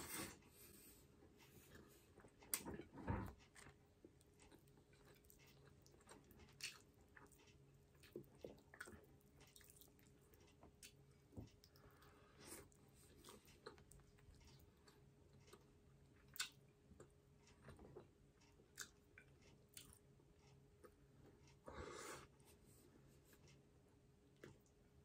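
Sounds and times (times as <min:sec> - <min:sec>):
person chewing food: 0:00.0 - 0:22.3.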